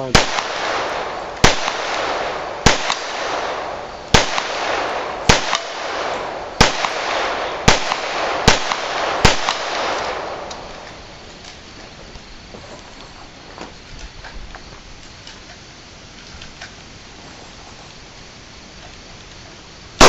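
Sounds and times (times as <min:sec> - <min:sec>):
gunshots with echo: 0:00.0 - 0:10.8.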